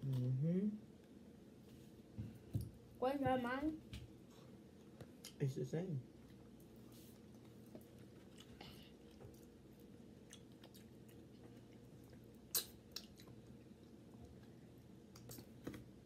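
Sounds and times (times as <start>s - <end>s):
people chewing: 6.2s - 15.8s
small mouth clicks: 12.5s - 13.3s.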